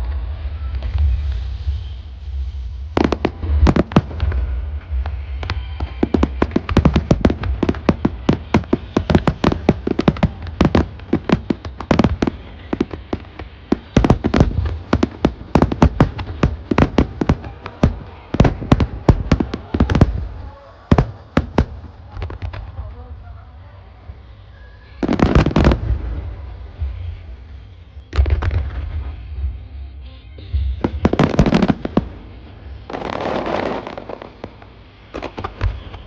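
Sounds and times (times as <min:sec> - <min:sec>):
firework shells bursting: 0:03.0 - 0:20.3, 0:30.9 - 0:32.3, 0:32.9 - 0:36.0.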